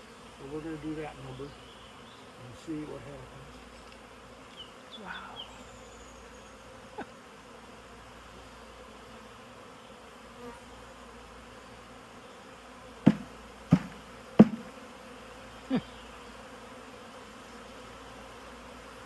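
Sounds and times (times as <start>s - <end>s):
bees buzzing: 0.0s - 19.0s
sharp knocks: 13.0s - 14.7s.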